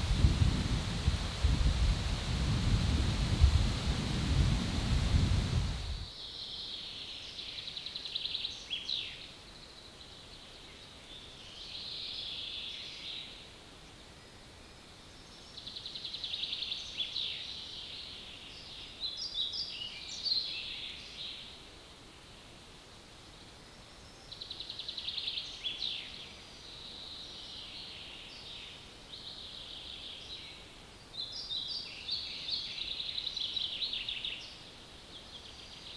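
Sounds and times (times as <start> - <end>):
loud low rumbling: 0.0 - 6.0.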